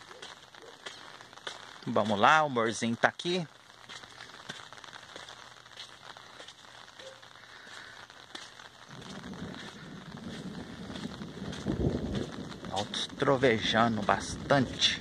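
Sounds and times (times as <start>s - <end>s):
rain pattering on an umbrella: 0.0s - 15.0s
low thunder rumble: 8.9s - 15.0s.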